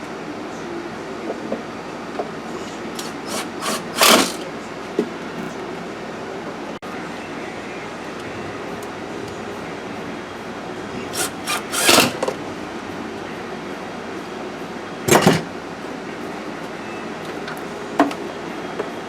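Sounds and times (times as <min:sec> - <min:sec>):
steady background noise: 0:00.0 - 0:19.0
car parts scraping and knocking: 0:03.0 - 0:04.5, 0:11.2 - 0:12.4.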